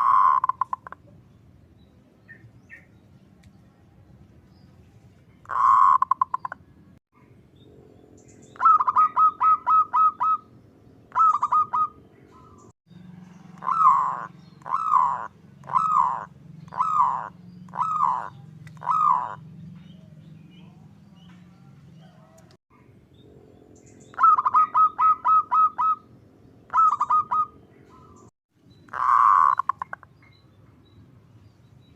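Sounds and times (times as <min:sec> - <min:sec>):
dove cooing and trilling: 0:00.0 - 0:01.0, 0:05.5 - 0:06.6, 0:07.6 - 0:12.7, 0:13.4 - 0:22.4, 0:23.1 - 0:28.3, 0:28.9 - 0:30.0.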